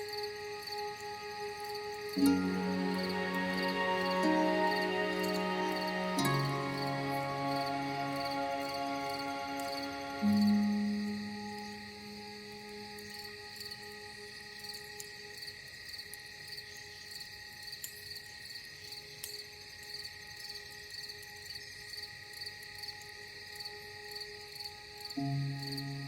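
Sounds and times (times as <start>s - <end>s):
crickets chirring: 0.0s - 26.0s
soft ambient music notes: 0.0s - 26.0s.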